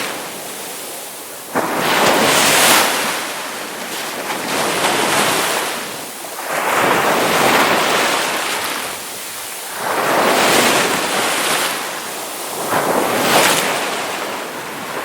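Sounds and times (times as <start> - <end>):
ocean waves breaking on shore: 0.0 - 15.0.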